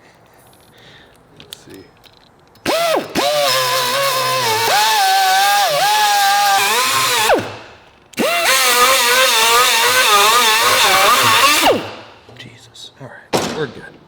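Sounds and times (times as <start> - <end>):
small power tool motor whine: 2.7 - 12.1.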